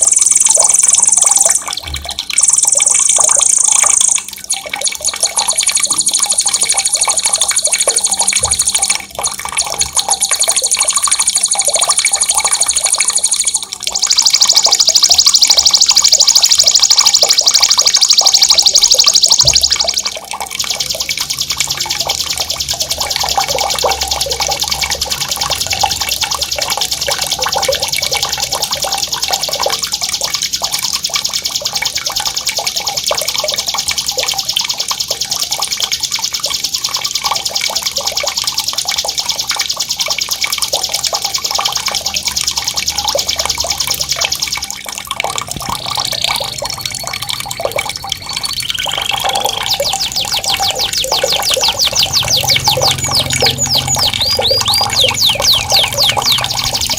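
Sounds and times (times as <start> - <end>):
songbird high rolling trill: 0.0 - 9.0, 9.8 - 28.8, 45.9 - 56.9
bubbling water: 0.0 - 56.9.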